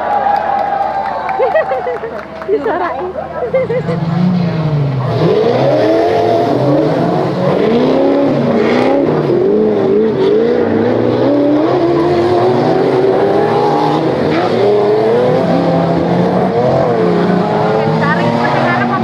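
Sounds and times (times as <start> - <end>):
engine revving: 3.8 - 19.0.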